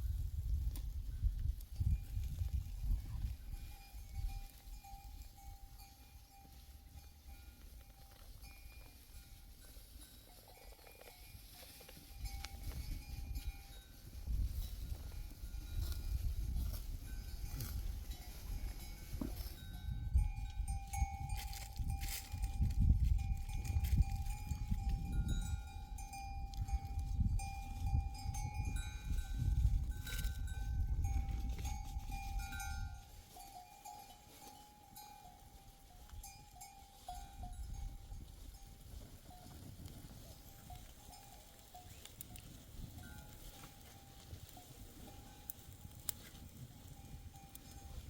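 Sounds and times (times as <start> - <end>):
sheep and goat bells ringing: 0.1 - 48.0.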